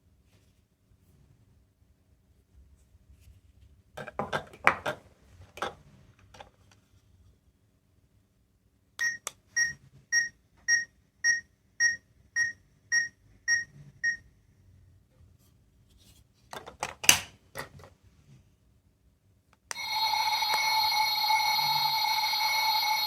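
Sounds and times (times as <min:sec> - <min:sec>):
high-pitched toy beeps: 0:19.8 - 0:23.0.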